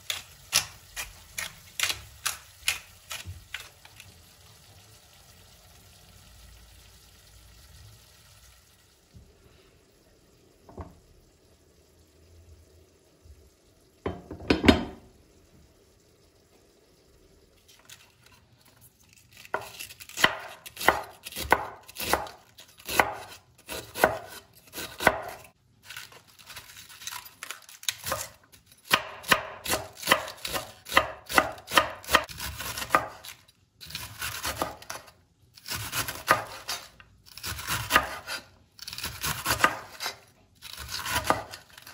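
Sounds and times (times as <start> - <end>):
knife chopping on cutting board: 19.5 - 25.5, 28.9 - 33.2, 35.8 - 38.4, 39.2 - 40.2.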